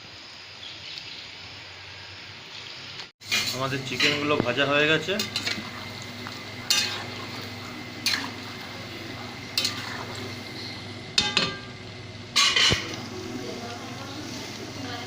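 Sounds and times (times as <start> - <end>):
chicken sizzling in hot oil: 3.2 - 15.0
metal ladle knocking on pan: 11.2 - 11.7.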